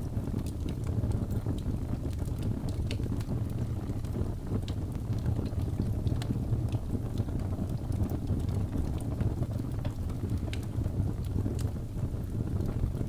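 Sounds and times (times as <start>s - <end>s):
fire flames rumbling: 0.0s - 13.0s
wood crackling and popping: 0.0s - 13.0s.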